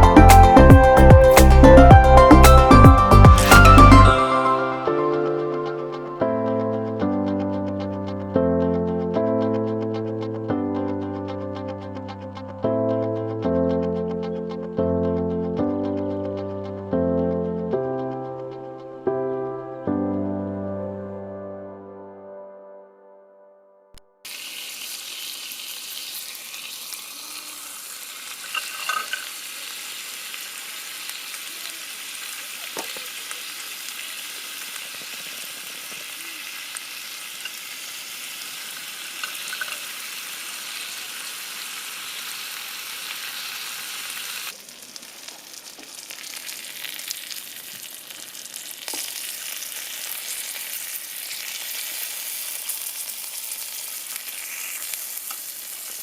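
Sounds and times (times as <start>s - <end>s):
food sizzling in a pan: 24.3s - 56.0s.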